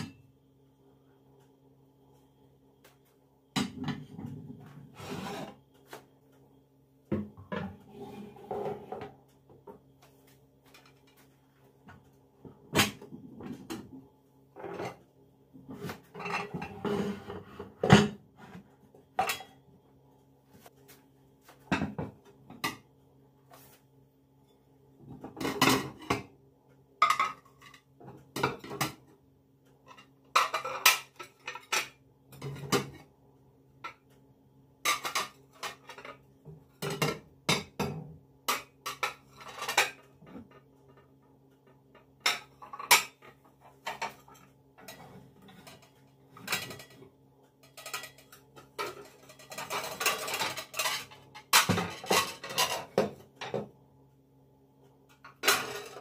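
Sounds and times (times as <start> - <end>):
dishes and cutlery clattering: 15.8 - 18.2, 19.2 - 19.6, 27.0 - 29.0, 29.9 - 33.0, 34.9 - 36.2, 36.8 - 40.6, 42.2 - 47.0, 47.6 - 53.7, 55.2 - 56.0.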